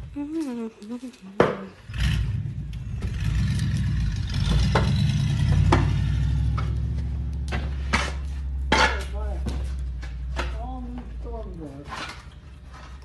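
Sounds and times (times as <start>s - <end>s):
engine running steadily: 1.9s - 10.6s.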